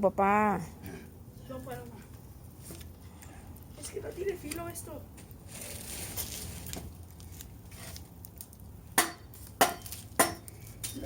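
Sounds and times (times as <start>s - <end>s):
machete striking firewood: 9.0s - 10.6s.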